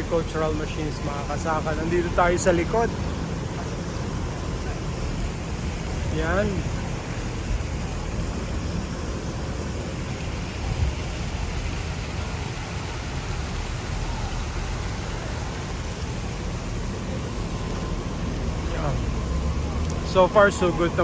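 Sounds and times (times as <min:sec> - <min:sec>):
rushing background noise: 0:00.0 - 0:21.0.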